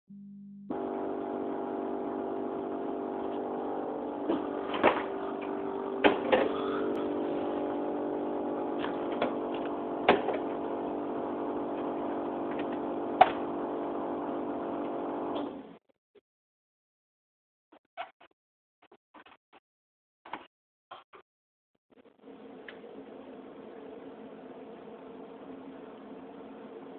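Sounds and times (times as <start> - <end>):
refrigerator humming: 0.1 - 15.8.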